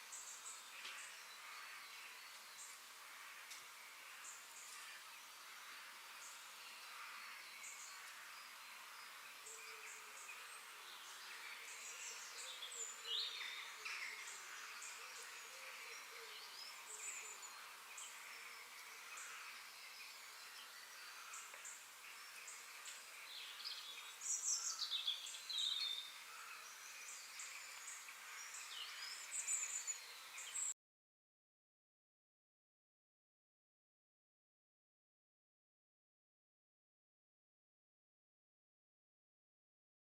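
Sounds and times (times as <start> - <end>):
steady high hiss: 0.0 - 30.7.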